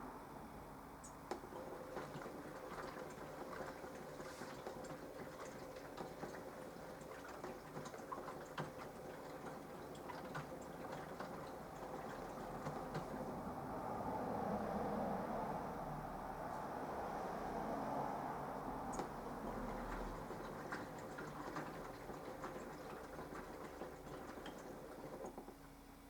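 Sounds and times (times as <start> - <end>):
small ticks and drips: 1.0 - 13.2, 18.9 - 25.7
water splashing in washing machine drum: 1.4 - 13.4, 18.9 - 25.8.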